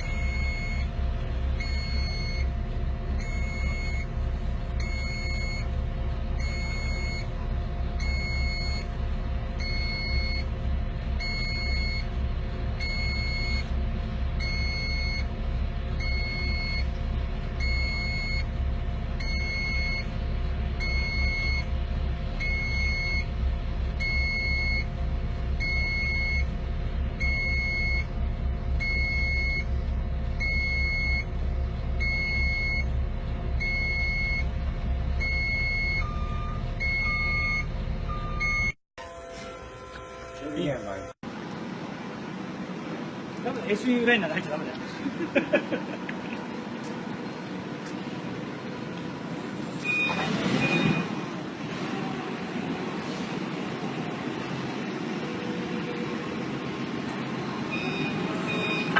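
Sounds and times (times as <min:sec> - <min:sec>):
reversing alarm beeping: 0:00.0 - 0:01.0, 0:01.6 - 0:02.6, 0:03.2 - 0:05.8, 0:06.4 - 0:07.4, 0:08.0 - 0:09.0, 0:09.6 - 0:10.6, 0:11.2 - 0:12.2, 0:12.8 - 0:13.8, 0:14.4 - 0:15.3, 0:15.9 - 0:17.0, 0:17.6 - 0:18.5, 0:19.1 - 0:20.2, 0:20.8 - 0:23.3, 0:24.0 - 0:25.0, 0:25.6 - 0:26.6, 0:27.2 - 0:29.8, 0:30.4 - 0:31.4, 0:32.0 - 0:33.0, 0:33.6 - 0:34.6, 0:35.2 - 0:41.2, 0:49.8 - 0:51.2, 0:57.7 - 0:58.9
vehicle engine rumble: 0:00.0 - 0:58.9.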